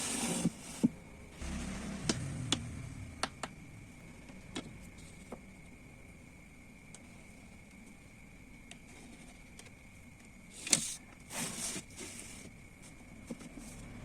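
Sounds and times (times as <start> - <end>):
faint high whine: 1.1 - 8.6
scraping rumble: 1.3 - 6.4.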